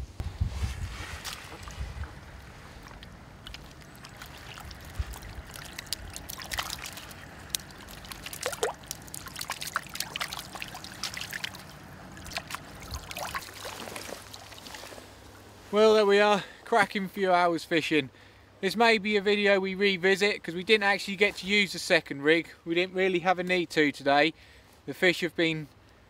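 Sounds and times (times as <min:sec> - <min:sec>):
small splashes: 0:00.9 - 0:15.2
water trickling and dripping: 0:01.2 - 0:15.0.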